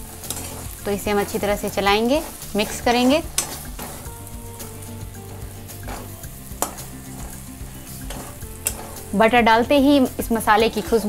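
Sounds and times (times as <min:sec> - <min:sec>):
food sizzling in a pan: 0:00.0 - 0:11.0
metal spatula scraping pan: 0:00.0 - 0:11.0
spatula knocking pan: 0:05.5 - 0:09.1.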